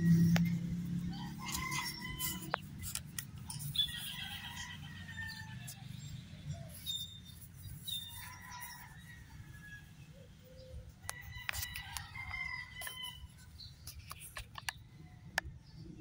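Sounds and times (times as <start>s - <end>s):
sharp clicks: 13.8s - 15.5s.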